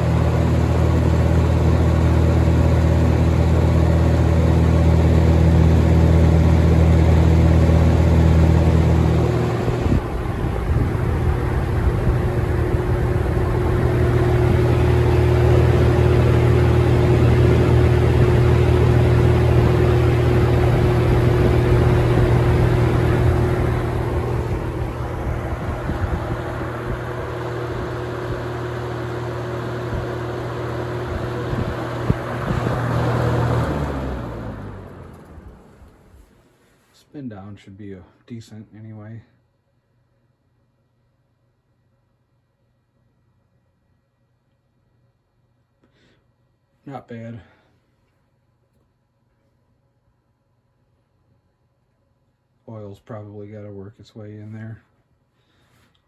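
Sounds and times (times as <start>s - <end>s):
box fan running: 0.0s - 38.1s.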